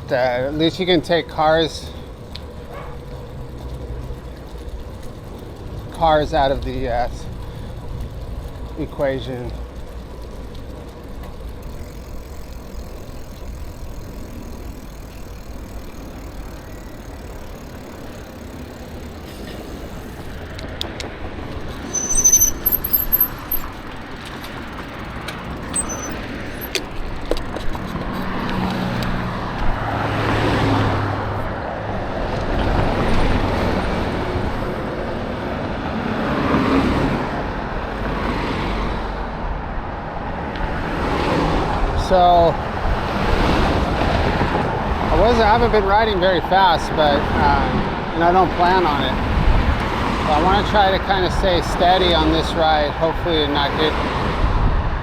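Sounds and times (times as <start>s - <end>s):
vehicles passing: 0.0s - 55.0s
brief high-pitched squeal: 21.8s - 23.4s, 25.8s - 26.2s.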